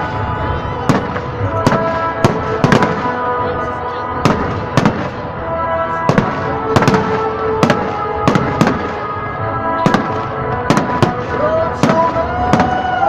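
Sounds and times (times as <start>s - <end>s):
fireworks bangs: 0.8s - 3.3s, 4.2s - 5.4s, 6.0s - 9.2s, 9.8s - 13.0s.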